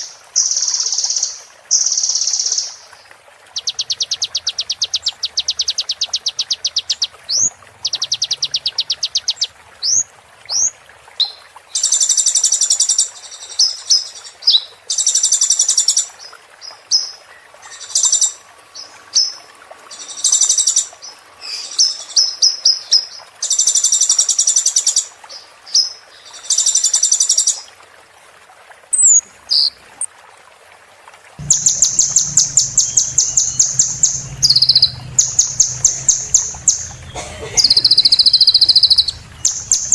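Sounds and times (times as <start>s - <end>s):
low steady hum: 31.4s - 39.9s
small bird trilling and chirping: 31.4s - 39.9s.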